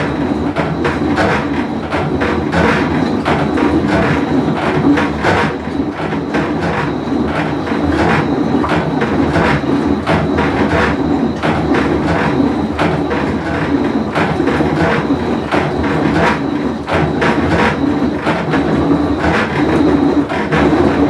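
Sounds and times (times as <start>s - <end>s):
washing machine rumbling and clattering: 0.0s - 21.0s.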